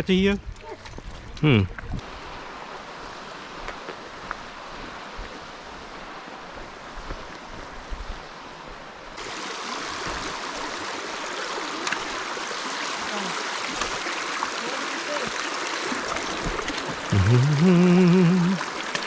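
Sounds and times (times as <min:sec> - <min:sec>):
creek water rushing: 0:02.0 - 0:19.0.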